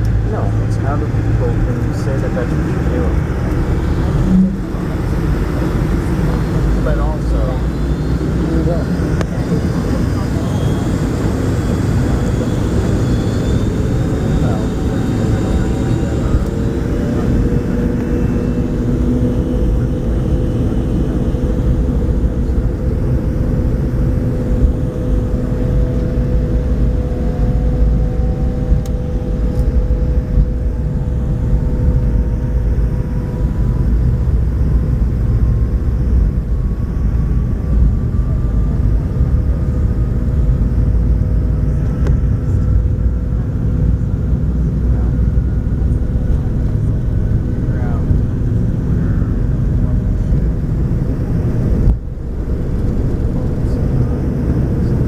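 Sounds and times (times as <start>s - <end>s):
whine rising in pitch: 0.0s - 43.8s
jet engine rumble: 0.0s - 55.0s
jet engine whine: 0.0s - 55.0s.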